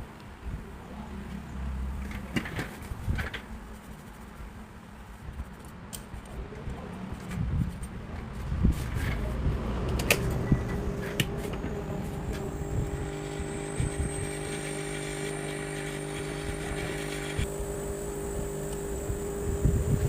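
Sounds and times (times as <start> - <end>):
machine running with low hum: 10.0 - 20.0.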